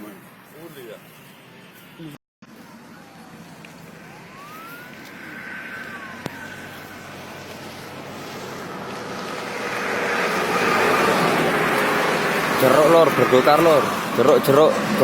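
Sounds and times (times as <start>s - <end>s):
road traffic noise: 0.0s - 15.0s
siren wailing: 2.6s - 14.2s.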